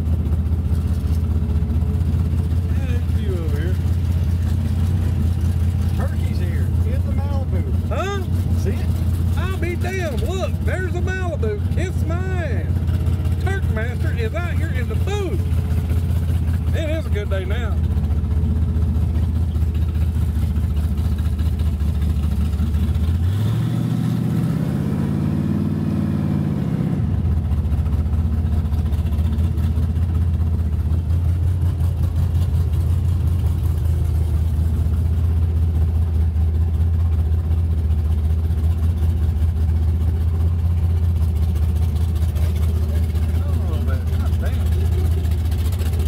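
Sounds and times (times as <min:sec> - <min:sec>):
car engine rumbling and revving: 0:00.0 - 0:46.0.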